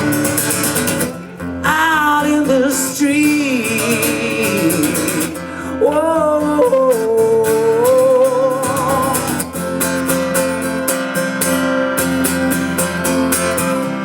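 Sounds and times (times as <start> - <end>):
strummed acoustic guitar: 0.0 - 14.0
person singing with vibrato: 1.6 - 9.8.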